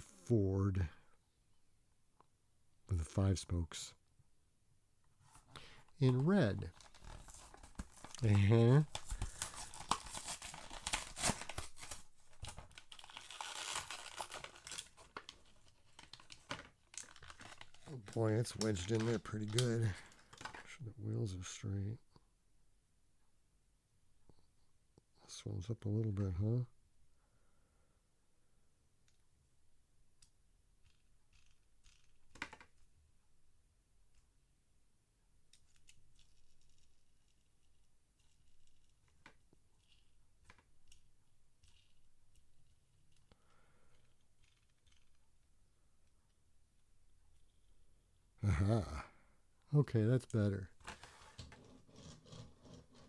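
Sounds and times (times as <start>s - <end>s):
packaging crinkling and tearing: 6.0s - 20.6s.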